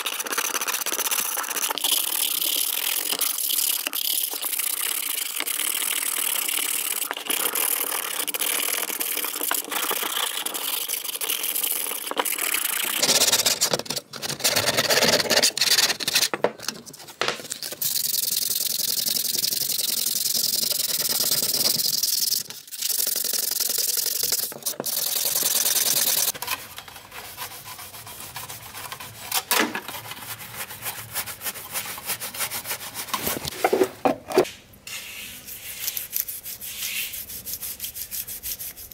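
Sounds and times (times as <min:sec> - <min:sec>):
sanding rasp: 0:25.3 - 0:33.5, 0:35.4 - 0:38.9.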